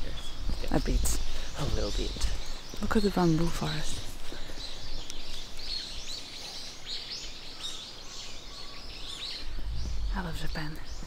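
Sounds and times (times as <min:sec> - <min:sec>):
small birds chirping: 0:00.0 - 0:11.0
wind rumble on microphone: 0:09.3 - 0:11.0.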